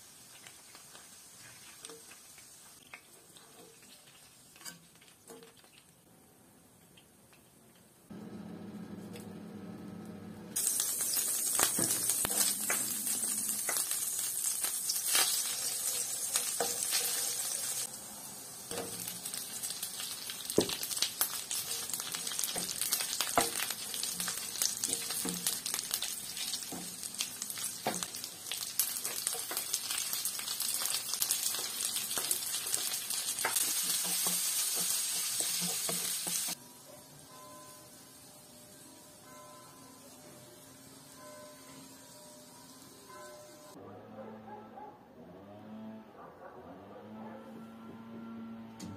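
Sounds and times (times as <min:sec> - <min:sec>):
food sizzling in frying pan: 0:00.0 - 0:05.6, 0:10.6 - 0:36.6.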